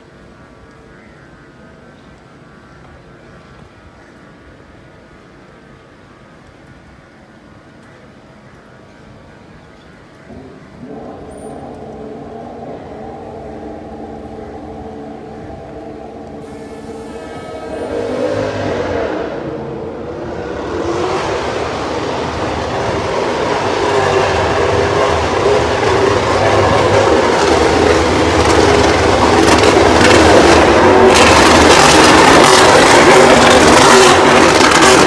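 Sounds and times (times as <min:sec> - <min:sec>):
vehicle engine din: 0:10.8 - 0:35.0.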